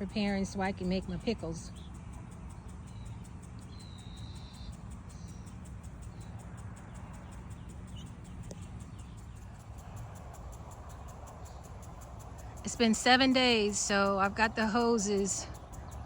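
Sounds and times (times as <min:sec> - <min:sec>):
faint bird chirps: 0:01.6 - 0:09.6.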